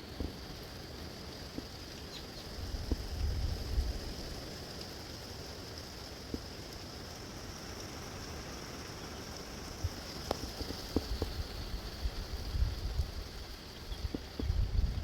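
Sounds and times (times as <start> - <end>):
wind buffeting microphone: 10.6 - 15.0.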